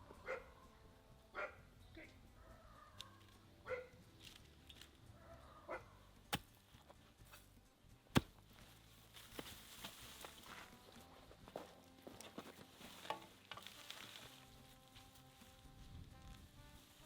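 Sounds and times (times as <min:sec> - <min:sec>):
sharp chopping knocks: 0:08.1 - 0:08.4.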